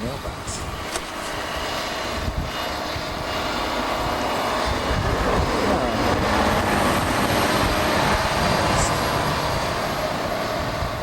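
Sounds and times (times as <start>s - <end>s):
snowplow truck engine: 0.6s - 11.0s
plow pushing snow: 1.0s - 11.0s.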